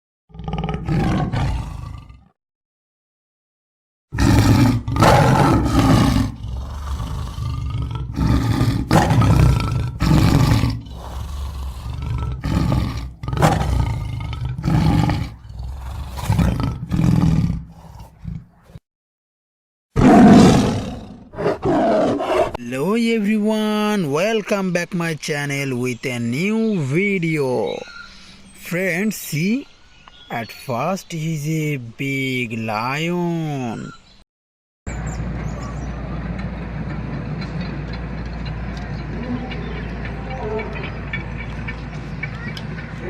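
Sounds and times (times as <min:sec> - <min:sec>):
big cat roaring and growling: 0:00.3 - 0:02.4, 0:04.2 - 0:18.8, 0:20.0 - 0:22.6.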